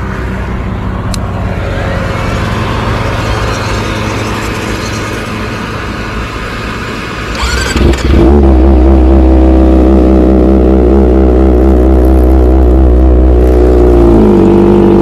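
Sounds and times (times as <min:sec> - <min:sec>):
motorcycle engine starting and idling: 0:07.2 - 0:10.6.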